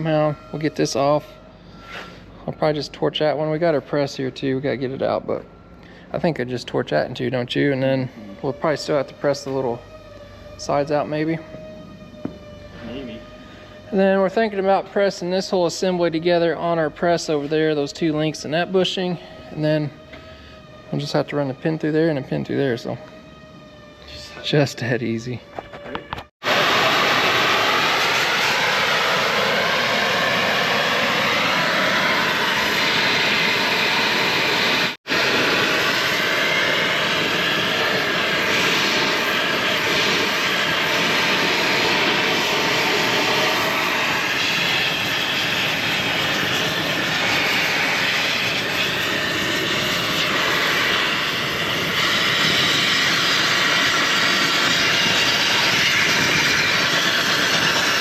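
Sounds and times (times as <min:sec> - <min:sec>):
cutting torch flame: 0:26.4 - 0:58.0.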